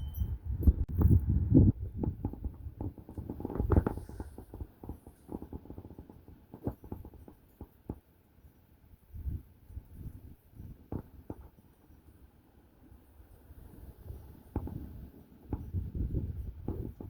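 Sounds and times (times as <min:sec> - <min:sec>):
wind buffeting microphone: 0:00.0 - 0:07.4, 0:09.0 - 0:11.5, 0:13.3 - 0:17.0.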